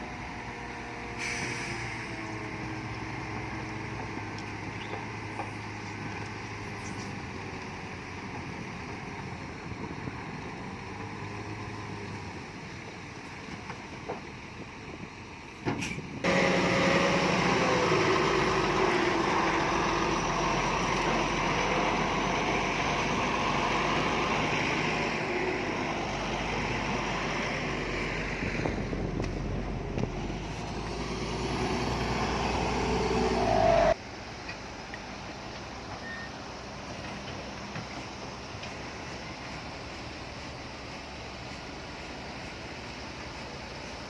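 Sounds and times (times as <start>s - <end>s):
heavy diesel machinery running: 16.3s - 34.0s.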